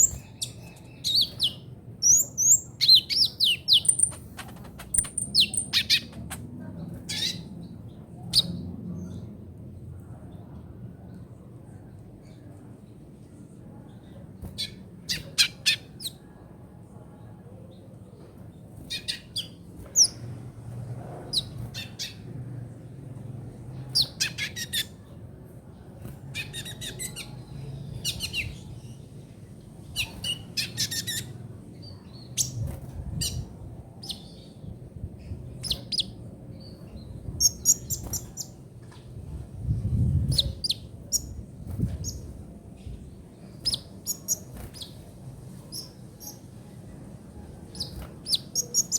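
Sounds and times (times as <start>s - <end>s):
bird chattering chirps and trills: 0.0s - 7.6s, 24.0s - 25.0s, 30.0s - 31.4s, 37.4s - 38.5s.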